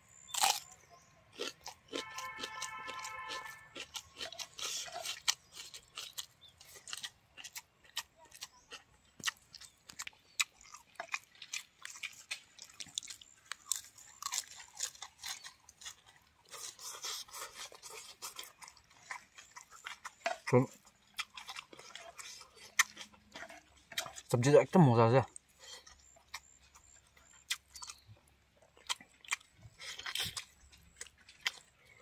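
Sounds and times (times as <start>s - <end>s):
chewing and crunching food: 0.0s - 32.0s
biting lettuce leaf: 0.3s - 24.2s.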